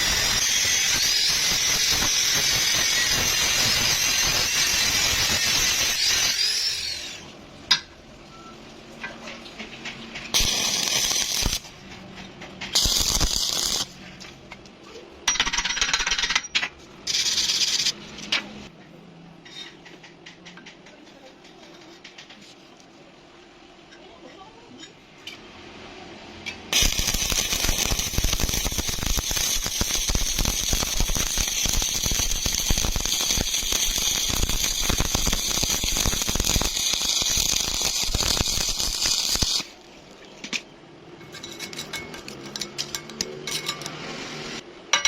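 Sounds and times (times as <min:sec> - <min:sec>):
welding arc crackling: 0:00.0 - 0:07.2, 0:10.3 - 0:11.8, 0:12.7 - 0:14.0, 0:26.7 - 0:39.9.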